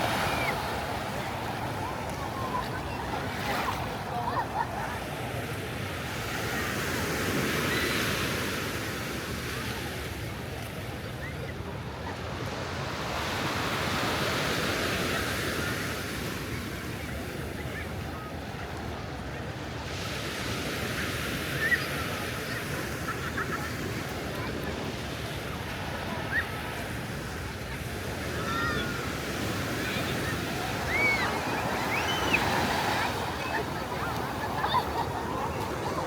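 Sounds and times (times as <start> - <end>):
ocean surf breaking: 0.0 - 4.4, 27.6 - 36.0.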